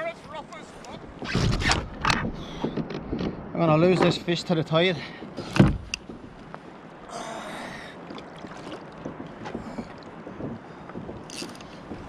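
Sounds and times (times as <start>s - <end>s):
rush of water: 0.0s - 12.0s
water sloshing against kayak: 0.2s - 12.0s
thump: 5.6s - 5.9s.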